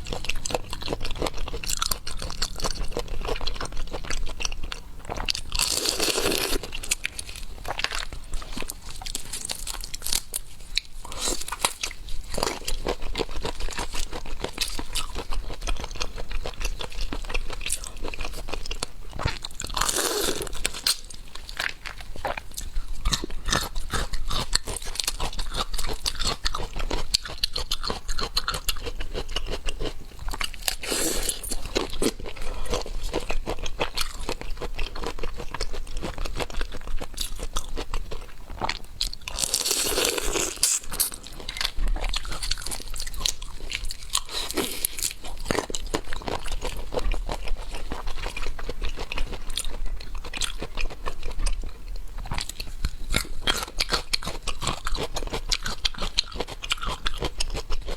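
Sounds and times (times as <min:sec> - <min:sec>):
wet chewing and crunching: 0:00.0 - 0:57.9.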